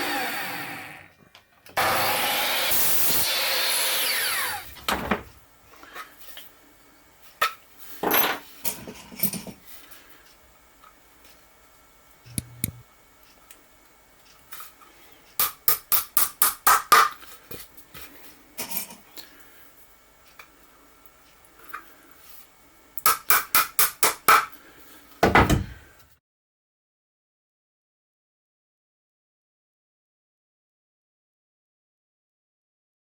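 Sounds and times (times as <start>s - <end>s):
power tool winding down: 0.0s - 1.2s, 1.8s - 4.8s
sharp taps: 12.3s - 12.8s.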